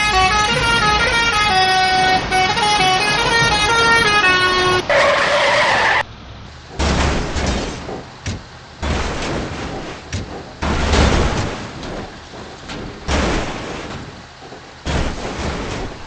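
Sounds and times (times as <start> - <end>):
rumbling crashing noises: 6.6 - 16.0.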